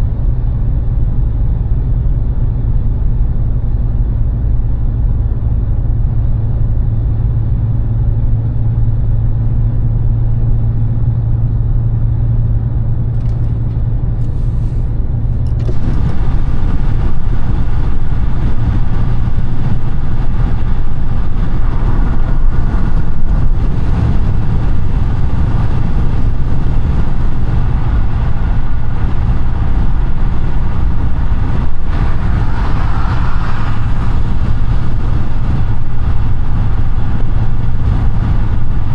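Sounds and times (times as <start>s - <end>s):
car engine hum: 4.3s - 38.9s
road noise: 12.9s - 38.9s.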